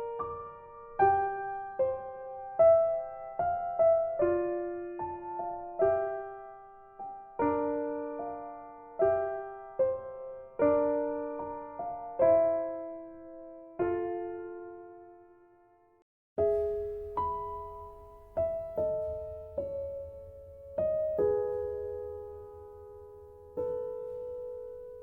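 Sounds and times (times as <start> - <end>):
gentle piano music: 0.0 - 25.0.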